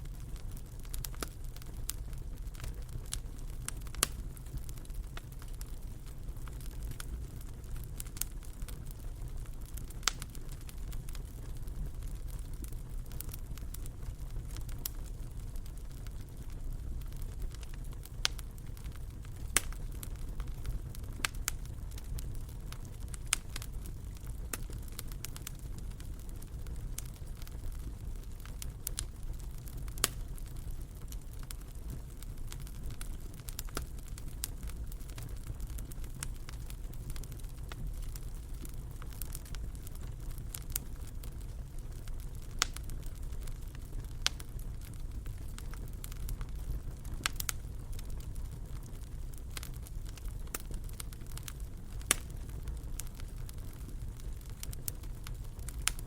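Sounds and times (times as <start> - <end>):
fire popping: 0.0 - 56.0
wood fire crackling: 0.0 - 56.0.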